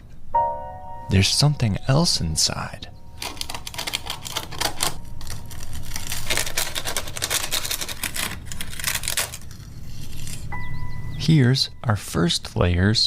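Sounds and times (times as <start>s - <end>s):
papery nest tearing and rustling: 3.2s - 10.6s.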